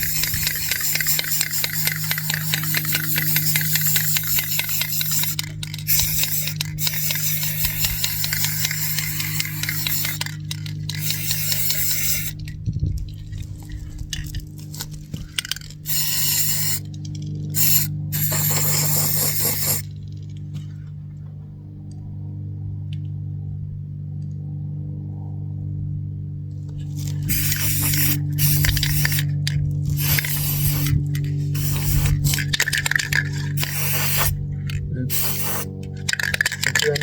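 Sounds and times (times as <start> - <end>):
aerosol spray can hissing: 0.0 - 12.4, 15.9 - 16.9, 17.6 - 19.8, 27.0 - 29.4, 30.0 - 34.4, 35.1 - 36.8
steady low hum: 0.0 - 37.0.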